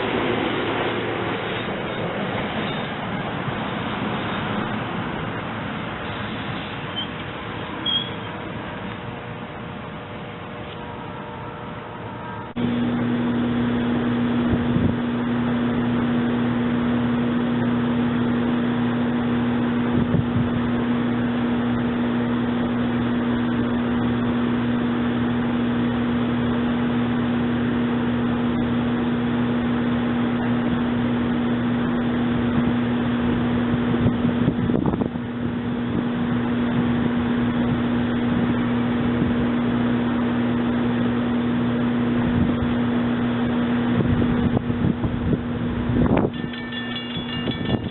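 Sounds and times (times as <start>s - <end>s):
constant rushing noise: 0.0s - 9.5s, 43.9s - 47.9s
railcar electrical hum: 0.0s - 47.9s.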